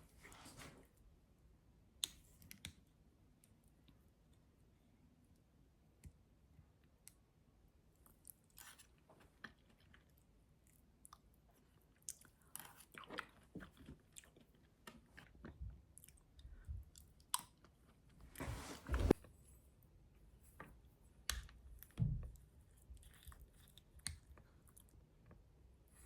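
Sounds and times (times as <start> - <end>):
person chewing and crunching: 11.9 - 17.8.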